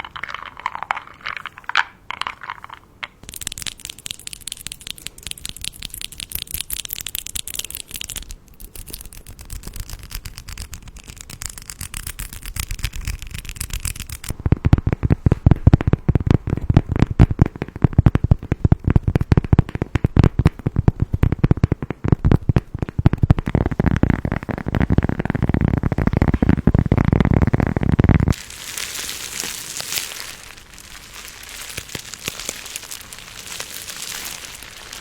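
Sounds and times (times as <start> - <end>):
small hard objects clicking and rattling: 0.0 - 15.1, 22.8 - 35.0.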